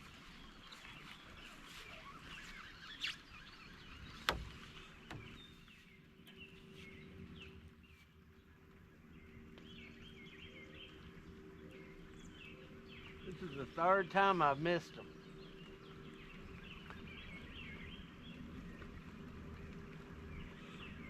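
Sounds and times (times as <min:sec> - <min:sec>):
faint steady hum: 0:03.5 - 0:21.0
birds chirping and calling: 0:09.1 - 0:18.5.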